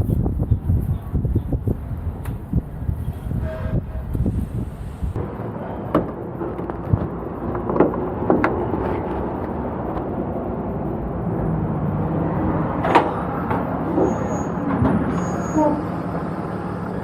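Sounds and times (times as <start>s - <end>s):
semi-truck engine running: 0.0s - 17.0s.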